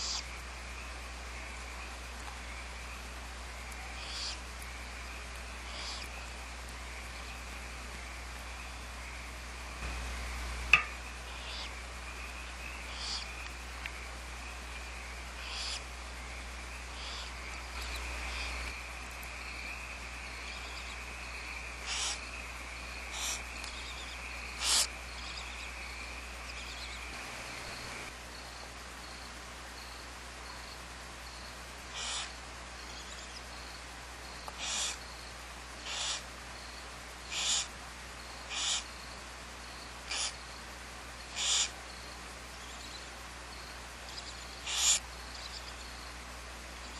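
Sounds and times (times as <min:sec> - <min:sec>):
owls screeching: 0:00.0 - 0:00.2, 0:04.0 - 0:04.4, 0:21.9 - 0:22.2, 0:24.6 - 0:24.9, 0:32.0 - 0:32.3, 0:34.6 - 0:35.0, 0:35.8 - 0:36.2, 0:37.3 - 0:37.7, 0:38.5 - 0:38.8, 0:40.1 - 0:40.4, 0:41.4 - 0:41.7, 0:44.6 - 0:45.0.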